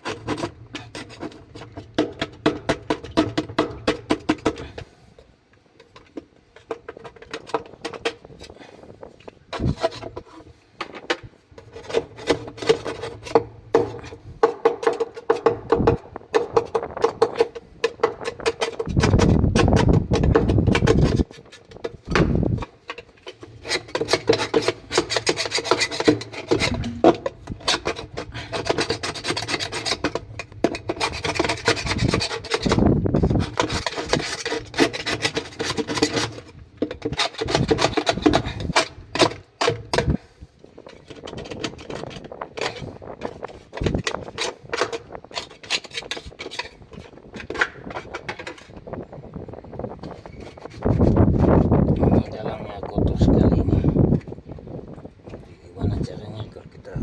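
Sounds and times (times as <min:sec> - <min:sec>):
knocks and clicks: 0:26.5 - 0:27.4.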